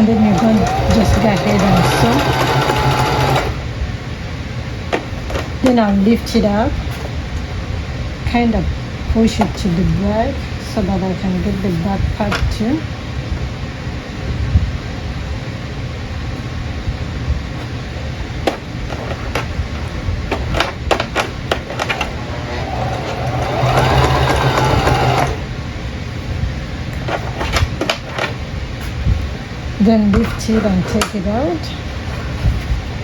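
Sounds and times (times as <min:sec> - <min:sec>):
sewing machine running: 0:00.0 - 0:03.6, 0:21.7 - 0:25.5.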